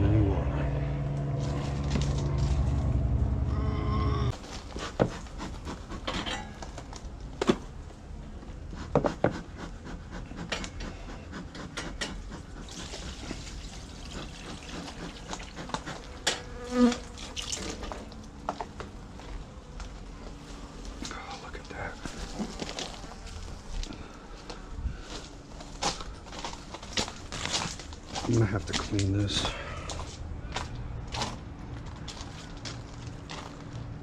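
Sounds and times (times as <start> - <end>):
honeybees buzzing: 13.4 - 21.1.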